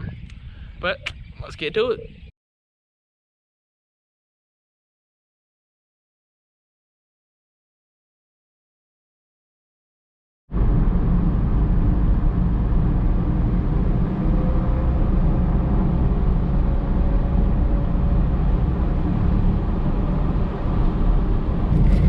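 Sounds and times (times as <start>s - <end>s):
car engine and road rumble: 10.5s - 22.0s.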